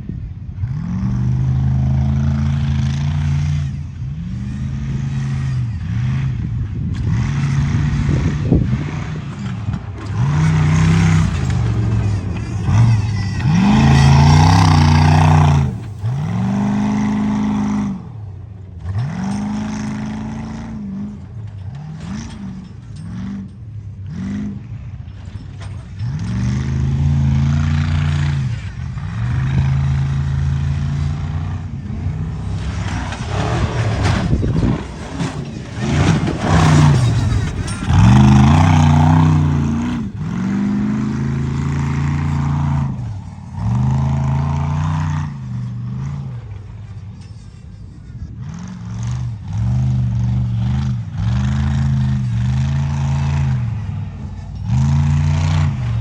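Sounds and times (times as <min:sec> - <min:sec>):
truck engine revving: 0:00.6 - 0:56.0.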